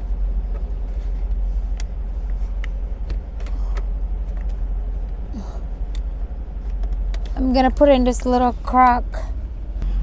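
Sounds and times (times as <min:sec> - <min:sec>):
truck engine idling: 0:00.0 - 0:10.0
cable clicking and rustling: 0:00.4 - 0:05.2.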